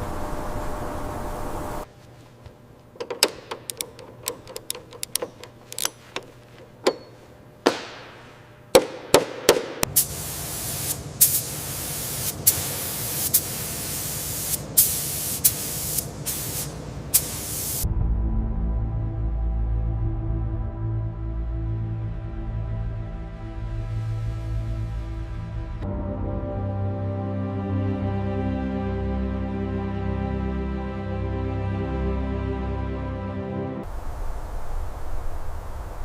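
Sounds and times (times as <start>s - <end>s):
tools clicking and knocking: 3.0s - 8.0s
spraying hiss: 9.8s - 17.8s
music: 17.8s - 33.9s.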